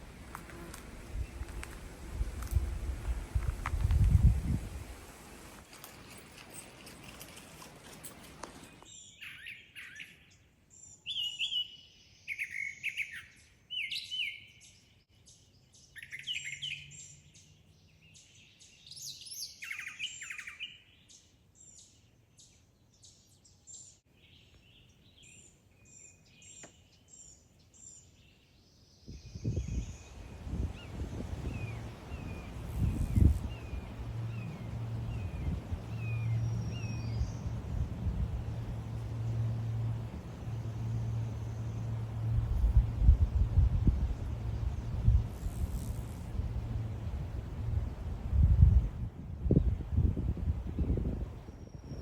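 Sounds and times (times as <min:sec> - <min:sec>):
songbird singing: 0:00.0 - 0:52.0
low rumble: 0:30.4 - 0:50.9.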